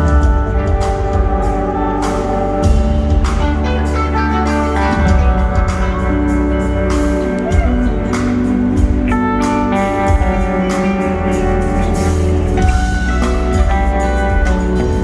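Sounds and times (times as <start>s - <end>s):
electric guitar lines: 0.0s - 15.0s
live rock band playing: 0.0s - 15.0s
drum hits: 4.8s - 9.1s.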